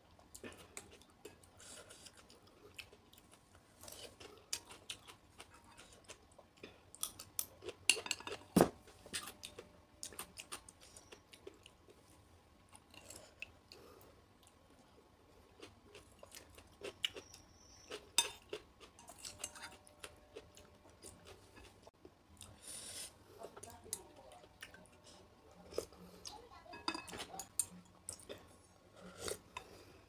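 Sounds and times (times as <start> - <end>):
chewing and crunching vegetables: 0.1 - 22.6.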